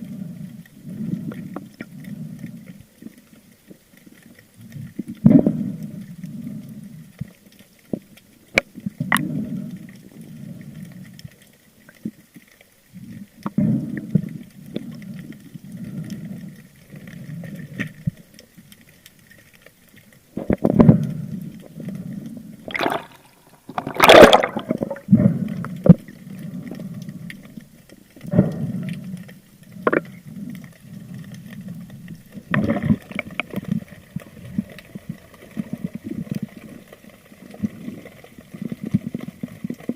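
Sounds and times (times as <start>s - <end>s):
muffled underwater whooshing and gurgling: 8.9s - 11.4s, 20.2s - 39.9s.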